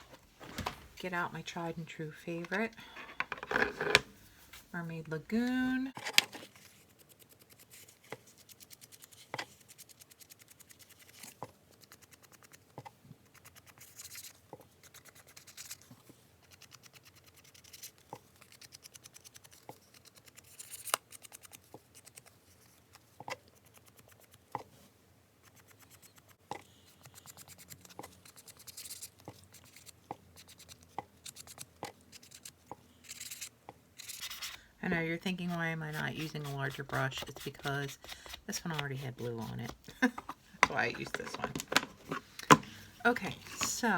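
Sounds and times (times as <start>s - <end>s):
brush scrubbing paper: 33.1s - 41.5s.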